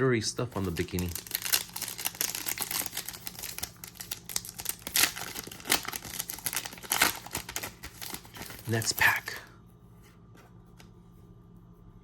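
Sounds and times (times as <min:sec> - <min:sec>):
trading cards clicking and rustling: 0:00.5 - 0:09.4.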